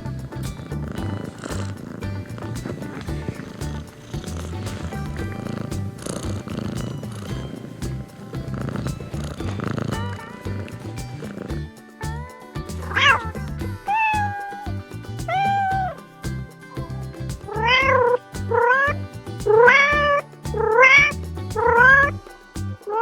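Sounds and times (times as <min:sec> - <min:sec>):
background music: 0:00.0 - 0:23.0
cat meowing: 0:13.9 - 0:14.7, 0:15.3 - 0:16.0.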